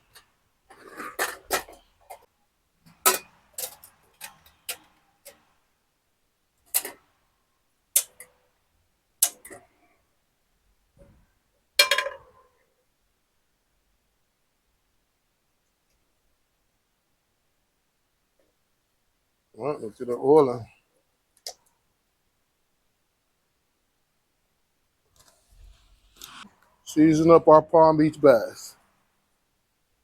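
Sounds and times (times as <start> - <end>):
kitchen utensils clicking and knocking: 2.9 - 5.5, 6.7 - 7.1, 9.2 - 9.7.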